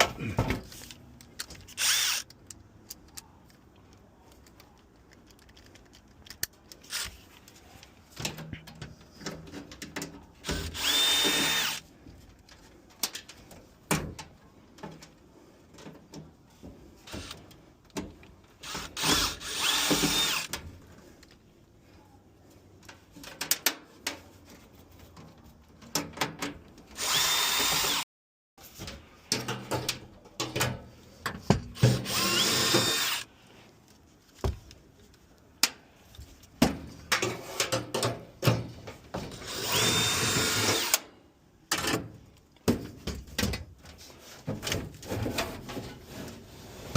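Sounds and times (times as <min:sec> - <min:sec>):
parts clicking and knocking: 0:00.0 - 0:21.4
power drill whine: 0:01.8 - 0:02.2, 0:10.7 - 0:11.8, 0:19.0 - 0:20.5, 0:27.0 - 0:28.0, 0:32.0 - 0:33.2, 0:39.4 - 0:41.0.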